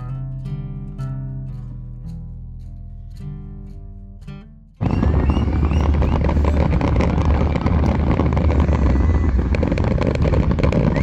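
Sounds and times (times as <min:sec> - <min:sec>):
firework bangs and crackling: 0:04.8 - 0:11.0
heavy low rumble: 0:04.8 - 0:11.0.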